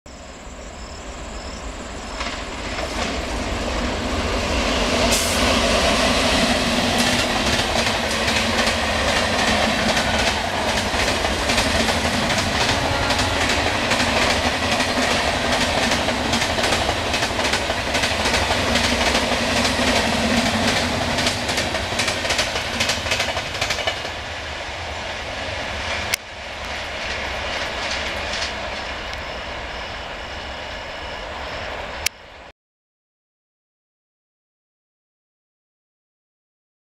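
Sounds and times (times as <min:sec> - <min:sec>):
train wheels rushing on rails: 0:01.1 - 0:32.1
clickety-clack over rail joints: 0:02.1 - 0:03.4, 0:04.9 - 0:24.2, 0:25.8 - 0:29.2.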